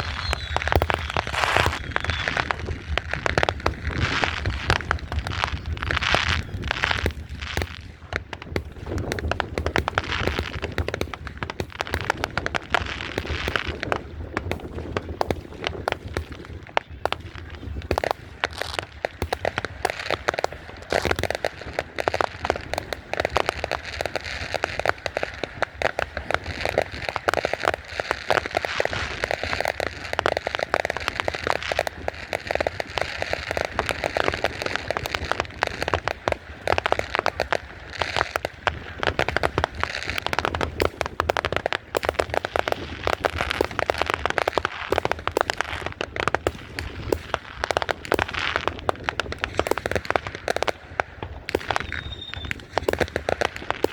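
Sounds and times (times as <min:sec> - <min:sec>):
fireworks crackling: 0:00.0 - 0:53.9
loud firework bangs: 0:00.0 - 0:53.9.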